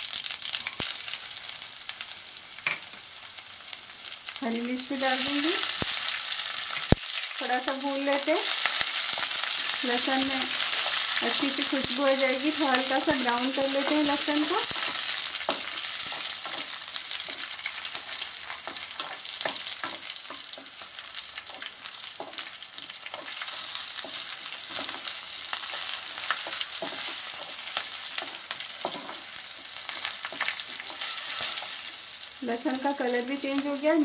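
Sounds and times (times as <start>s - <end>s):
garlic sizzling in hot oil: 0.0s - 34.0s
spatula scraping and tapping pan: 14.7s - 20.8s, 21.4s - 31.8s.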